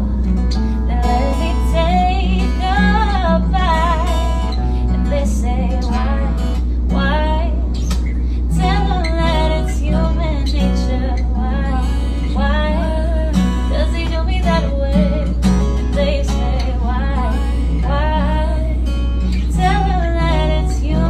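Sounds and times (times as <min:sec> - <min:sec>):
acoustic guitar: 0:00.0 - 0:21.0
steady low hum: 0:00.0 - 0:21.0
woman singing a slow song: 0:00.0 - 0:21.0.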